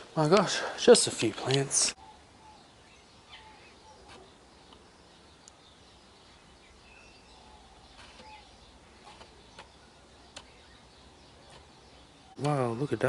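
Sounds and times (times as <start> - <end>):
faint bird chirps: 1.9 - 13.0
soft clicks: 5.4 - 5.6, 10.3 - 10.6.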